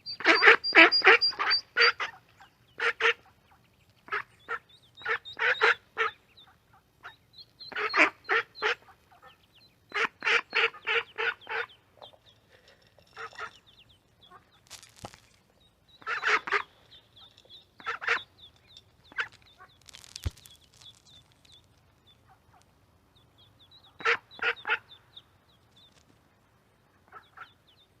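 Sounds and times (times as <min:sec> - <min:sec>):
ducklings peeping: 0:00.0 - 0:26.2, 0:26.8 - 0:28.0
duck quacking: 0:00.1 - 0:02.2, 0:02.8 - 0:03.4, 0:04.1 - 0:11.8, 0:16.0 - 0:16.8, 0:17.8 - 0:18.3, 0:24.0 - 0:25.0.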